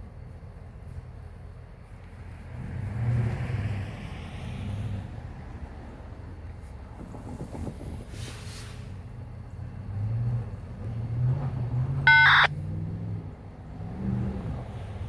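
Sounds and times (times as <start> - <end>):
diesel locomotive engine drone: 0.0 - 15.0
locomotive horn toot: 12.1 - 12.5.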